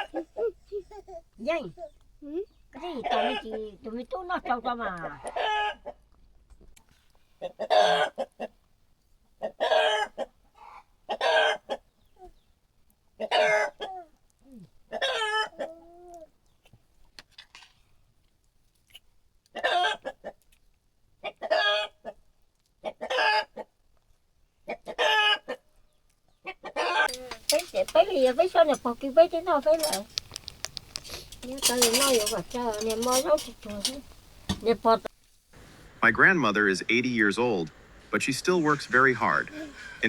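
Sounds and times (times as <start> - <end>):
chickens calling: 0.0 - 0.9, 2.5 - 3.8, 5.0 - 6.0, 9.4 - 12.0, 26.4 - 40.0.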